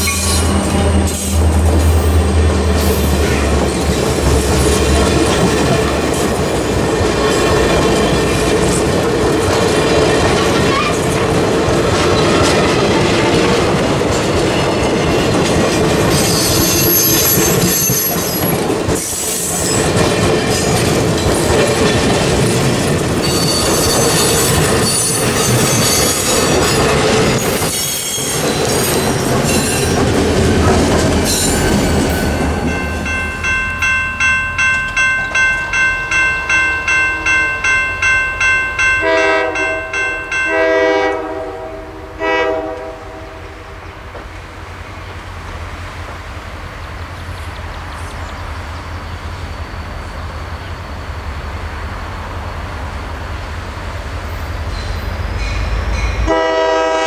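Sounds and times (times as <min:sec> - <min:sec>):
high wheel squeal: 0:00.0 - 0:01.4, 0:23.2 - 0:30.0
crossing bell ringing: 0:00.0 - 0:08.9, 0:22.5 - 0:30.2, 0:31.2 - 0:42.2, 0:54.7 - 0:57.0
wheels clacking over rail joints: 0:00.0 - 0:40.6
diesel locomotive passing: 0:00.0 - 0:57.0
train horn blasts: 0:39.0 - 0:43.8, 0:56.1 - 0:57.0.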